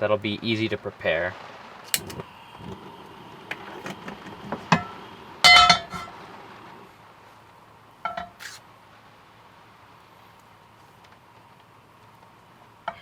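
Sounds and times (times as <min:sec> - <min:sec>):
cookware clinking and knocking: 0:03.5 - 0:04.9, 0:05.5 - 0:06.1.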